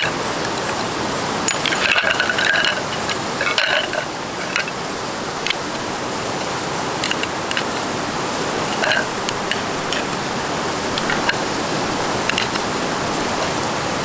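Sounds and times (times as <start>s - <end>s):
clicks and clattering: 1.5s - 4.7s.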